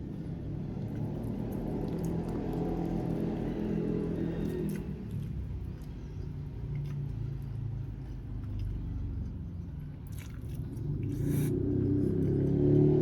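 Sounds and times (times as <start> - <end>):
crunchy bites of chicken: 10.0 - 12.4.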